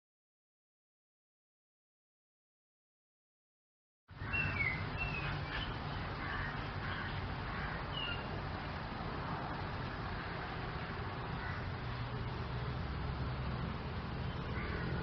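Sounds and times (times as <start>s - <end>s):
low outdoor rumble: 4.1s - 15.0s.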